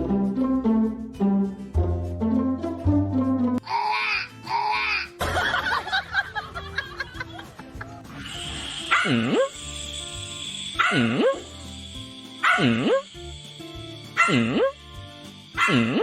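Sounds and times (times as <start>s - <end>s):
background music: 0.0s - 16.0s
dog vocalising: 8.8s - 9.5s, 14.2s - 14.8s, 15.6s - 16.0s.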